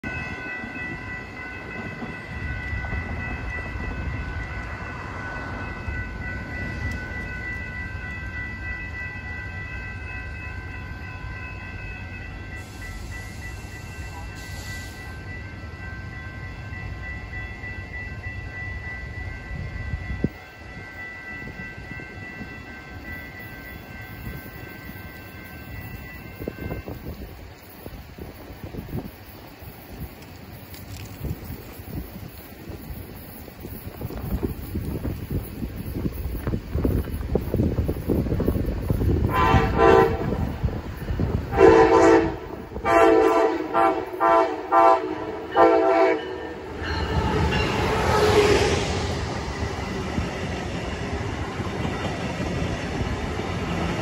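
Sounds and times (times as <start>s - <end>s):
steady high tones: 0.0s - 30.2s, 45.1s - 52.2s
train rumbling: 0.0s - 54.0s.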